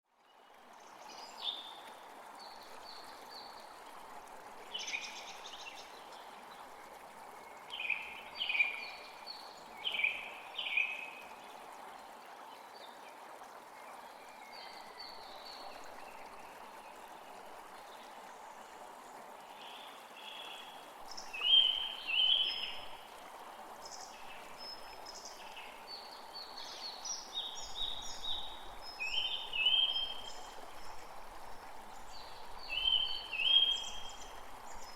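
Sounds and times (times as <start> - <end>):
flowing water rushing: 0.1 - 34.9.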